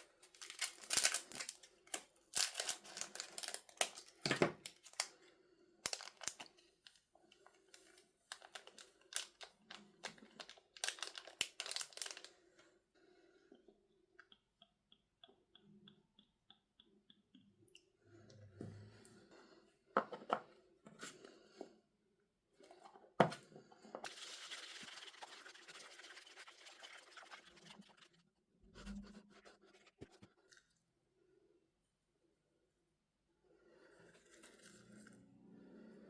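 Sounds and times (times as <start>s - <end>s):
packaging crinkling: 0.3s - 5.1s, 5.9s - 6.5s, 8.3s - 12.3s.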